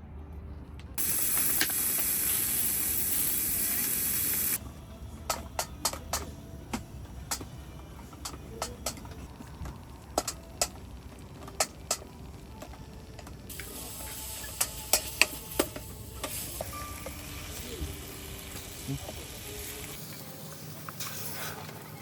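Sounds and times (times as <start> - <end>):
food sizzling in a pan: 1.0 - 4.6, 13.5 - 22.0
utensils tapping cookware: 5.3 - 10.8, 11.4 - 17.8.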